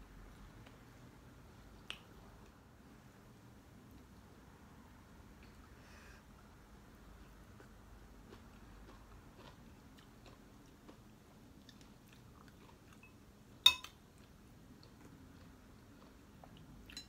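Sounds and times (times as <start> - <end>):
person chewing: 7.1 - 13.1
sharp clink against a bowl: 13.0 - 14.0.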